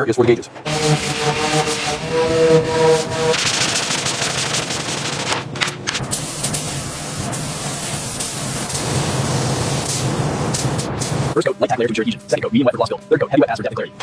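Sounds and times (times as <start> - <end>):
paint spray gun hissing: 2.7 - 11.4.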